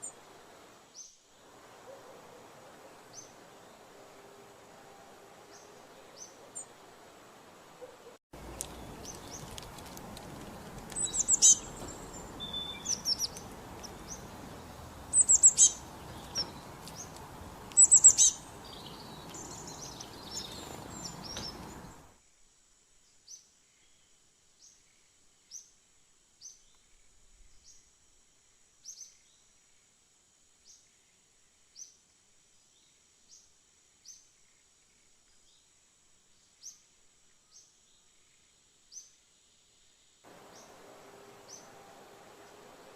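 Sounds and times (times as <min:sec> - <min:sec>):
outdoor background noise: 0:00.0 - 0:42.9
birds chirping: 0:07.8 - 0:22.1, 0:40.3 - 0:42.9.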